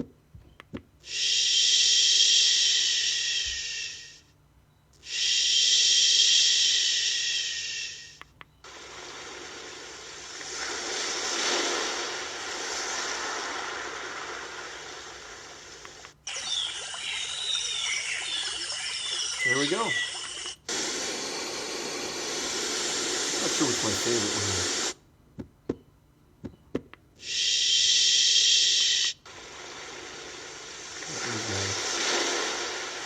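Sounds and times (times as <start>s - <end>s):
sound machine hissing rush: 8.7s - 25.0s, 27.2s - 33.0s.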